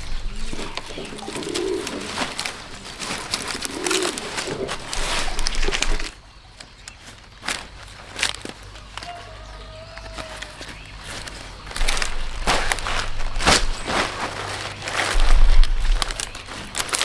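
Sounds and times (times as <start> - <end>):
dove cooing: 0.0 - 6.1
crackling rustling handling noise: 0.0 - 17.0.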